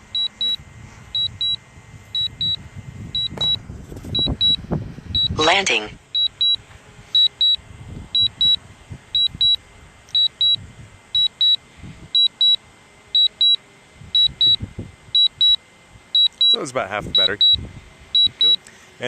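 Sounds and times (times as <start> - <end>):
high-pitched beeps in pairs: 0.1 - 0.6, 1.2 - 1.6, 2.2 - 2.6, 3.2 - 3.6, 4.2 - 4.6, 5.2 - 5.6, 6.2 - 6.6, 7.2 - 7.6, 8.2 - 8.6, 9.2 - 10.6, 11.2 - 11.6, 12.2 - 12.6, 13.2 - 13.6, 14.2 - 14.6, 15.2 - 15.6, 16.2 - 17.6, 18.2 - 18.6.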